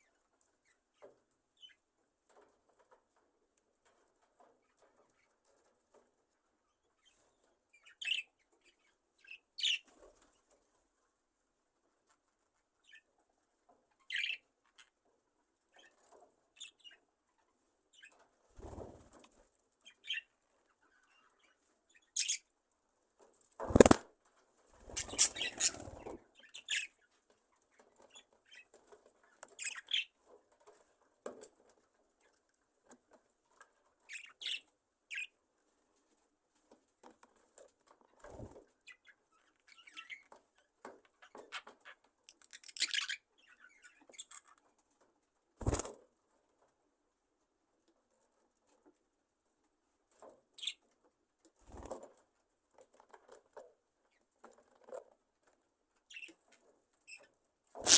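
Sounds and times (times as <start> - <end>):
wings flapping: 18.6 - 19.3, 23.6 - 24.1, 24.8 - 26.2, 45.6 - 46.0
budgerigars chirping: 25.0 - 26.9.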